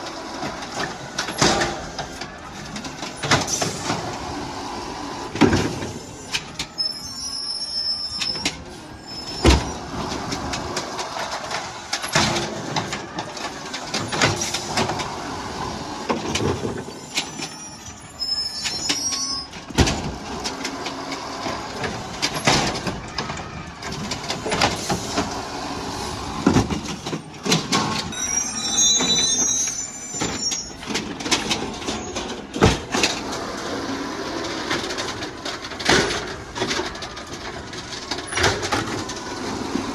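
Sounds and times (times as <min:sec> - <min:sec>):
garbage truck working: 0:00.0 - 0:39.9
high squeal: 0:06.0 - 0:10.0, 0:16.7 - 0:19.6, 0:27.8 - 0:32.4.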